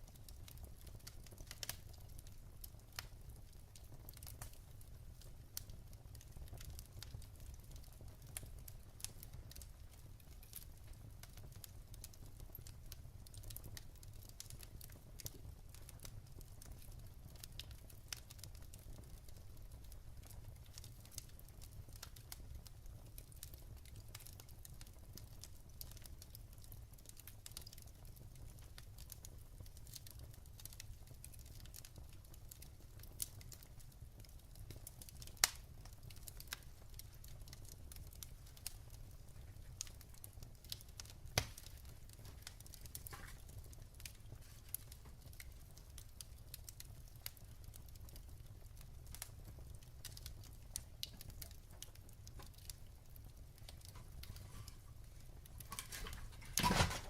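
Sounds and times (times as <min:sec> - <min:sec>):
low fire rumble: 0:00.0 - 0:57.0
wood fire crackling: 0:00.0 - 0:57.0
loud fire pop: 0:55.7 - 0:57.0.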